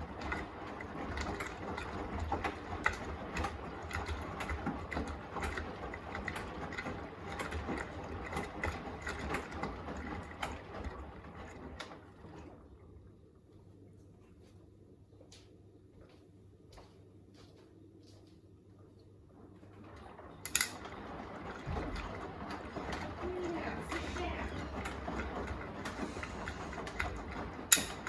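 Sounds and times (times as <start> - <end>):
laundry tumbling clicks and knocks: 0.0 - 12.6, 19.5 - 28.0
washing machine motor hum: 0.0 - 28.0.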